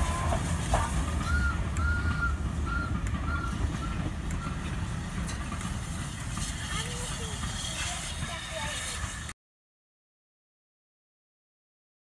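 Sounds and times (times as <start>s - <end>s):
steady low rumble: 0.0s - 9.3s.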